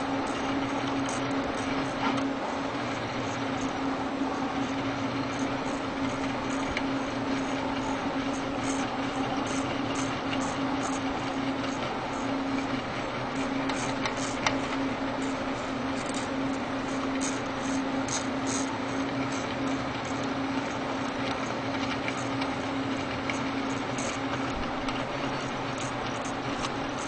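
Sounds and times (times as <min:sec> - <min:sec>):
fan whirring: 0:00.0 - 0:27.0
printer motor hum: 0:00.0 - 0:27.0.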